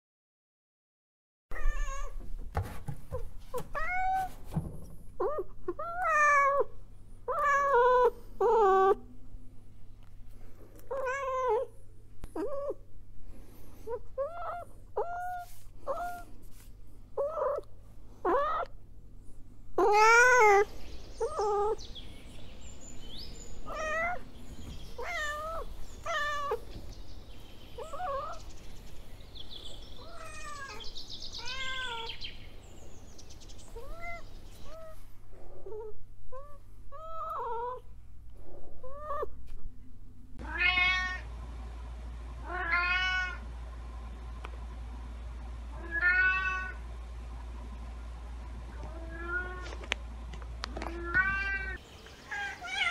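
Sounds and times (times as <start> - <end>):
cat meowing: 1.5 - 2.2, 3.7 - 4.3, 5.2 - 6.7, 10.9 - 11.7, 19.8 - 21.8, 23.6 - 24.2, 25.0 - 26.6, 27.8 - 28.4, 30.0 - 30.8, 31.4 - 32.2, 33.8 - 35.0, 40.4 - 41.2, 42.5 - 43.4, 45.8 - 46.8, 48.9 - 49.8, 50.8 - 52.9.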